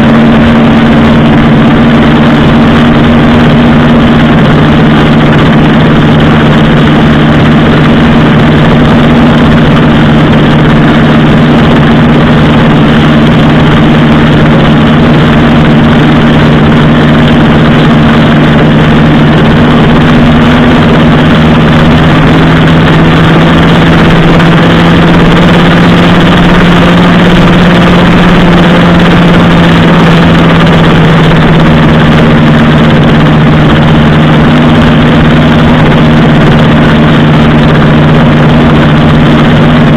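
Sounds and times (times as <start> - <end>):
loud rushing noise: 0.0 - 39.9
motorcycle engine running: 0.0 - 39.9.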